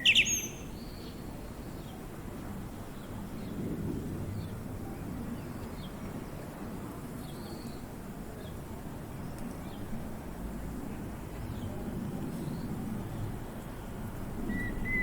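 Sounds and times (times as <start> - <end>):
small birds chirping: 0.0 - 1.2.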